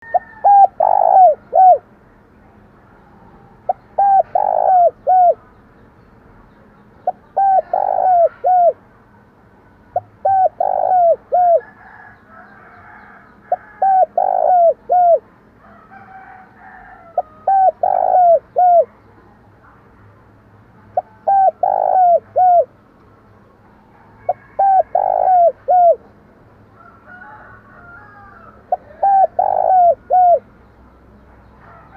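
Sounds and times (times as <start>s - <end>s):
dove cooing: 0.0s - 1.9s, 3.6s - 5.5s, 7.0s - 8.8s, 10.0s - 15.3s, 16.0s - 19.0s, 21.0s - 22.7s, 23.9s - 26.1s, 27.7s - 30.5s.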